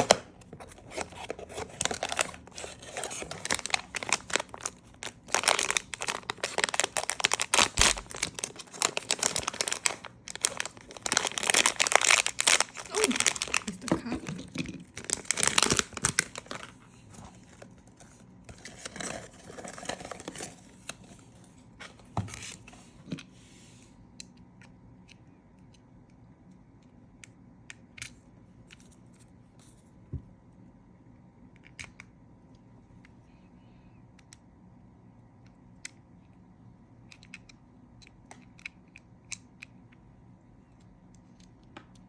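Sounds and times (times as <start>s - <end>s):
packaging rustling and tearing: 0.0s - 21.2s.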